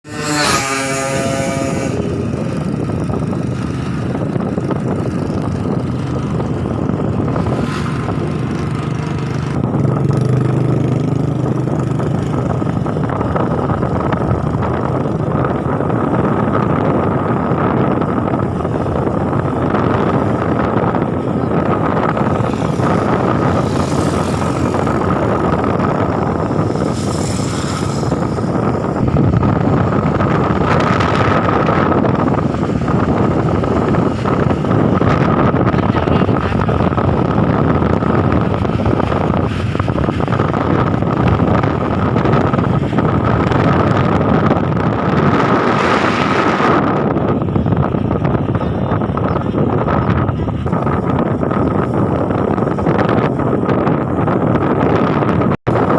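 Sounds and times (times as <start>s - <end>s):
moving vehicle noise: 0.0s - 55.9s
wind buffeting microphone: 0.0s - 55.9s.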